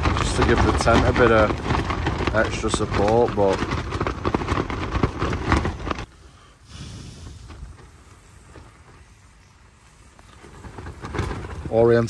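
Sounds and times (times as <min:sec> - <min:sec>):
wind gusting against a tent: 0:00.0 - 0:12.0
faint rustle and hiss: 0:06.0 - 0:12.0.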